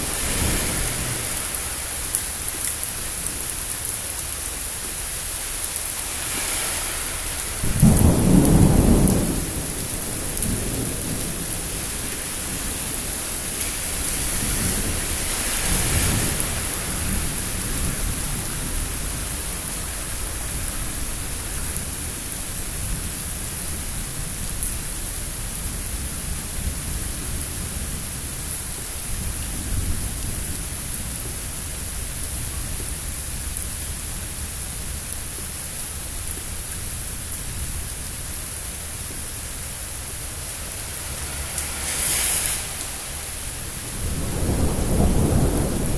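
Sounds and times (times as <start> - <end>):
steady rain: 0.0 - 45.9
thunder rumbling: 6.1 - 22.2, 41.0 - 45.9.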